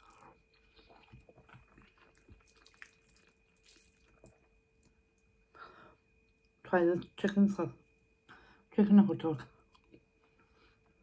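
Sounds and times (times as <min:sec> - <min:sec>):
faint chewing noises: 0:00.0 - 0:05.5.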